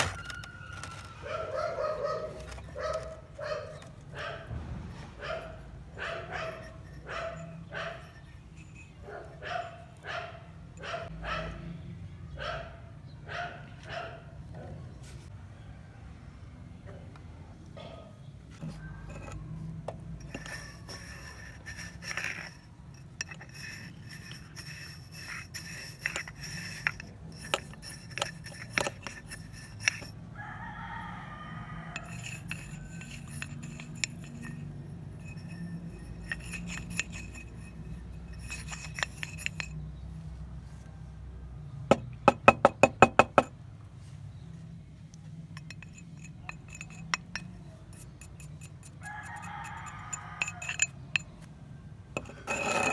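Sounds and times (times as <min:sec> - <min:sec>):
glass and metal parts clinking: 0:00.0 - 0:01.4, 0:02.3 - 0:04.1, 0:06.0 - 0:10.1, 0:18.6 - 0:30.2, 0:31.9 - 0:39.8, 0:41.9 - 0:43.5, 0:45.5 - 0:51.5, 0:52.2 - 0:52.9.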